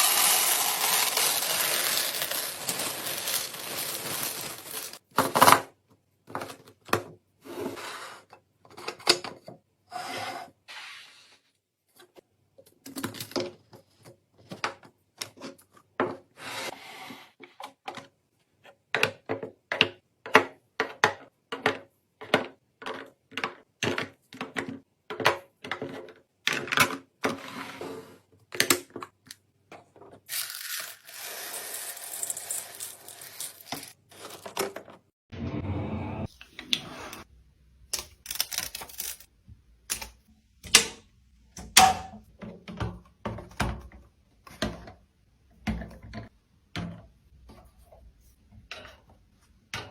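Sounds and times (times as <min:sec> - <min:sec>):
food containers clattering: 0:00.0 - 0:05.1.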